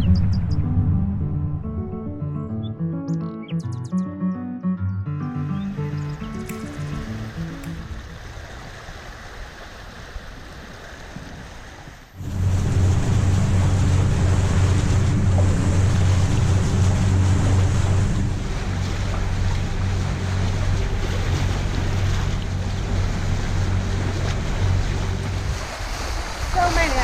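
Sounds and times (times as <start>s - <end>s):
boat engine hum: 0.0s - 27.0s
water rushing past hulls: 5.7s - 27.0s.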